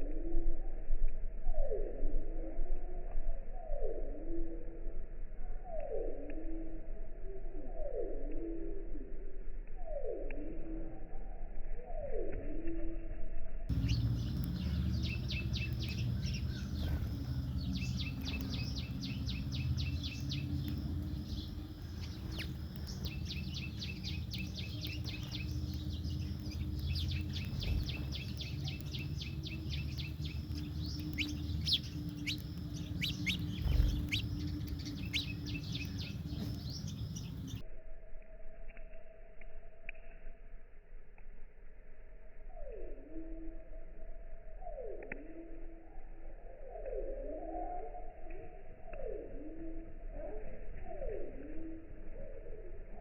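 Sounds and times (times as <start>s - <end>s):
sparrows chirping: 13.7s - 37.6s
steady low hum: 13.7s - 38.0s.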